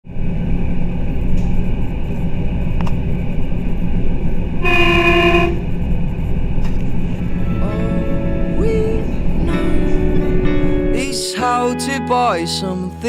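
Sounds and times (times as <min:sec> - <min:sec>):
vehicle rumble: 0:00.0 - 0:11.0
horn blast: 0:04.6 - 0:05.8, 0:07.2 - 0:10.9.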